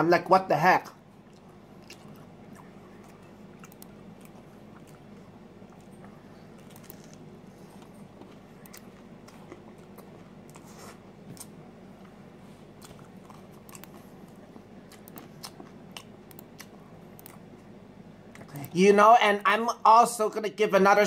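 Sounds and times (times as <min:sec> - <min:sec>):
low room hum: 0:00.0 - 0:21.0
crunchy chewing: 0:01.2 - 0:17.7.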